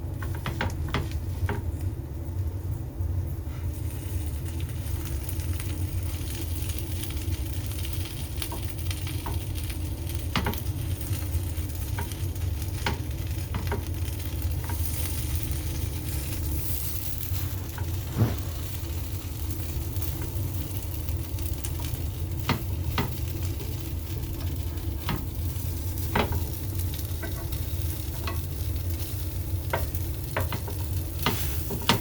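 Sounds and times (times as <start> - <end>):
bread sizzling in a pan: 0.0 - 2.2, 3.4 - 32.0
low hum: 17.4 - 19.2.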